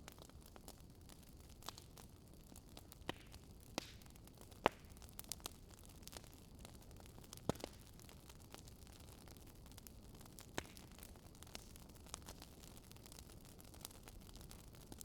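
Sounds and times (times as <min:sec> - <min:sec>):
wood fire crackling: 0:00.0 - 0:15.0
sharp pops of fire: 0:02.9 - 0:05.4, 0:07.3 - 0:07.8, 0:10.4 - 0:11.7.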